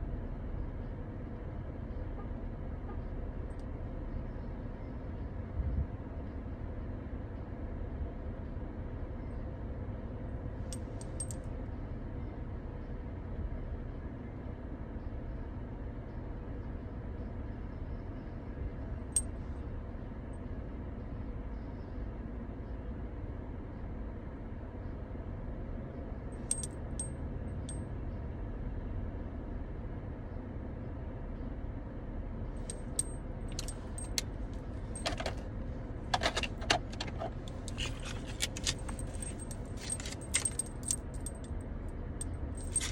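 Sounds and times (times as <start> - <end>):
keys jangling: 26.4 - 26.7, 32.6 - 35.4, 36.1 - 41.5, 42.6 - 42.9
steady low rumble: 32.3 - 42.9.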